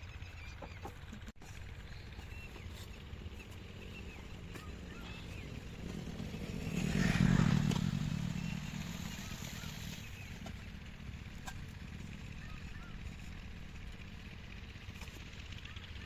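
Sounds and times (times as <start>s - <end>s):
vehicle engine passing by: 2.3s - 14.6s.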